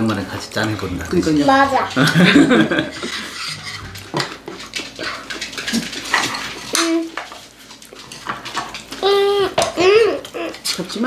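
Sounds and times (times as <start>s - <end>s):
chopsticks and spoons on plates: 0.0s - 11.0s
people laughing: 2.0s - 3.5s
chewing: 3.2s - 10.8s.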